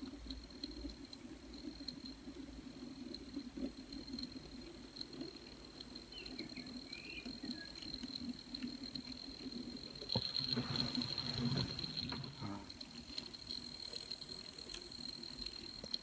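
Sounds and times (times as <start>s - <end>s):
model train motor hum: 0.0s - 16.0s
wheels clicking: 0.0s - 16.0s
thin high whine: 10.1s - 14.4s
faint short squeaks: 10.2s - 12.9s.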